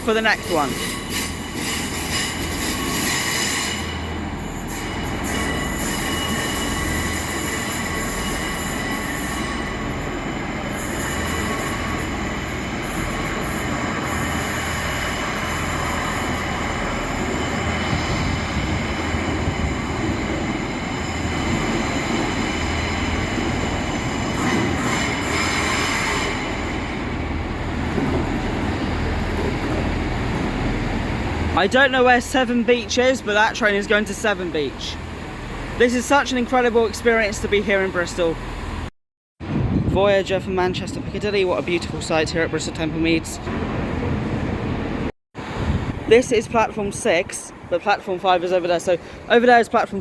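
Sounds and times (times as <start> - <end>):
train wheels squealing on rails: 0.0 - 38.9
train rumble: 0.0 - 50.0.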